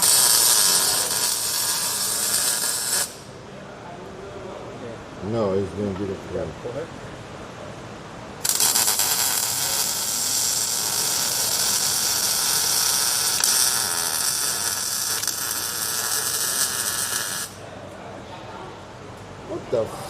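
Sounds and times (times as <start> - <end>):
welding arc crackling: 0.0 - 3.3, 8.4 - 17.6.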